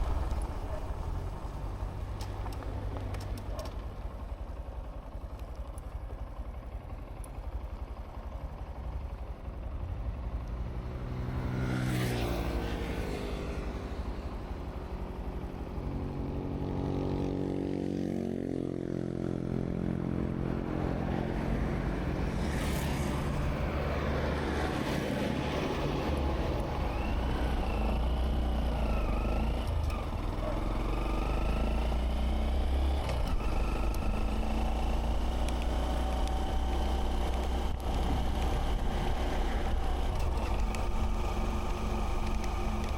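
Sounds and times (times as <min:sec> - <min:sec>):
motorcycle engine accelerating: 0:07.5 - 0:42.9.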